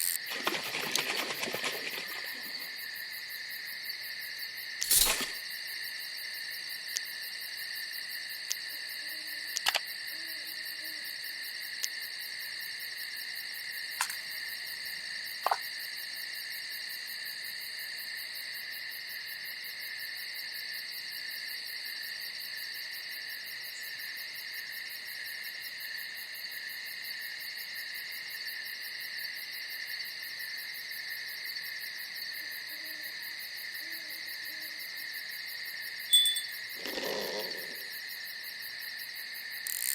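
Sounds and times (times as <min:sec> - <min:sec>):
insects trilling: 0:00.0 - 0:18.8, 0:31.6 - 0:39.9
faint low hoots: 0:36.5 - 0:38.0.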